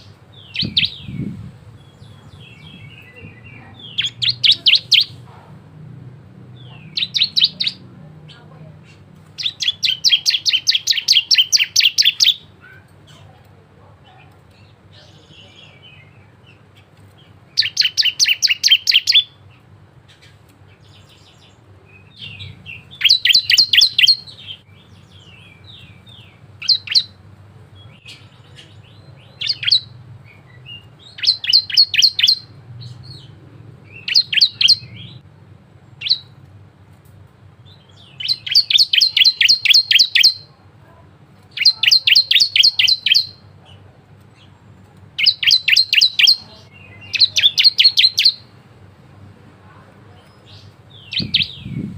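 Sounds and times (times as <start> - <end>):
songbird singing sharp notes: 0.0 - 5.2, 6.5 - 12.5, 17.2 - 19.5, 20.2 - 27.2, 27.8 - 35.2, 36.0 - 36.4, 37.7 - 40.5, 41.5 - 43.4, 45.2 - 48.5, 50.2 - 51.9.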